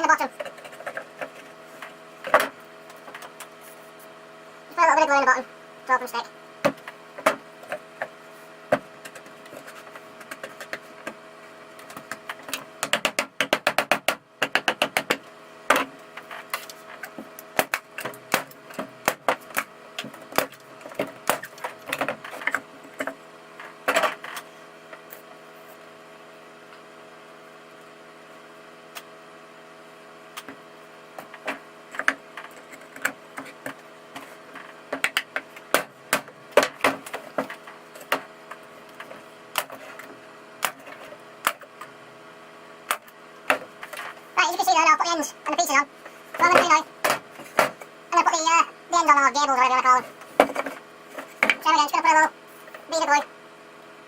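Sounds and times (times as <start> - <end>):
steady low hum: 0.0 - 54.0
wooden blocks knocking and clicking: 11.8 - 23.2, 31.2 - 41.7, 50.3 - 51.7.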